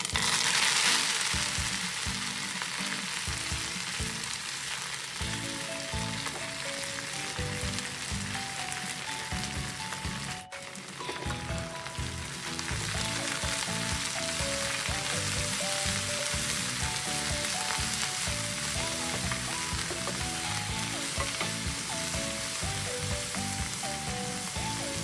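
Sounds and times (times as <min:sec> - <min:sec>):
leaves sizzling in hot oil: 0:00.0 - 0:25.0
melodic music over a beat: 0:05.2 - 0:25.0.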